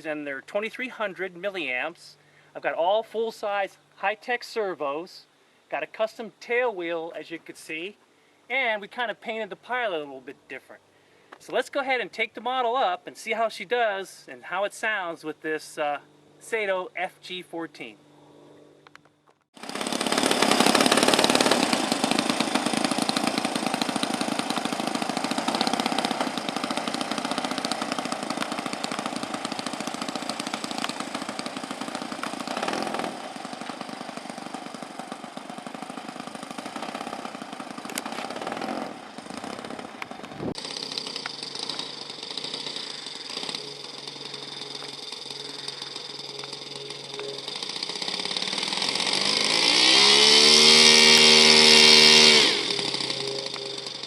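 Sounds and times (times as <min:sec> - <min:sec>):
model airplane engine at high power: 0:18.3 - 0:54.0.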